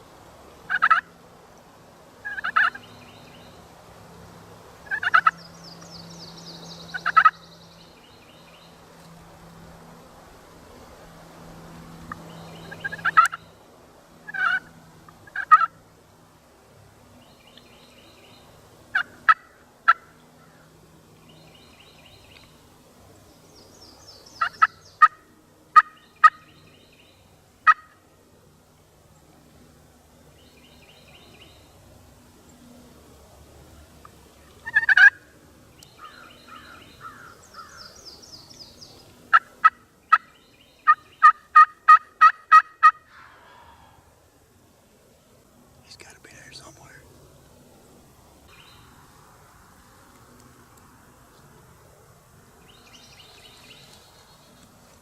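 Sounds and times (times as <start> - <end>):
turkeys gobbling: 0.7 - 1.1, 2.2 - 2.8, 4.8 - 5.4, 7.0 - 7.4, 12.8 - 13.4, 14.3 - 15.7, 25.8 - 26.4, 27.6 - 28.0, 34.6 - 35.2, 39.3 - 43.8.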